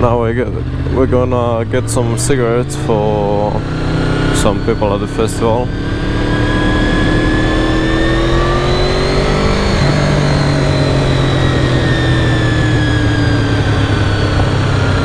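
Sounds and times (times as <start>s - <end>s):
motorcycle engine accelerating: 0.0s - 15.0s
wind noise: 3.5s - 15.0s.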